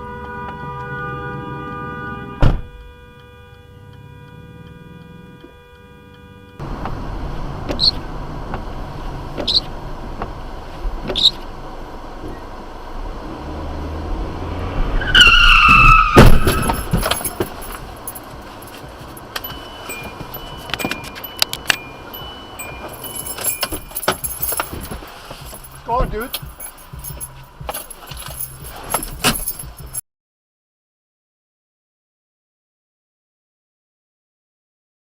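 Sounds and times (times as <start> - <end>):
road noise: 0.0 - 30.0
tires squealing: 6.6 - 11.8, 12.4 - 29.9
loud collision: 15.2 - 18.2
rattling debris: 16.2 - 21.8.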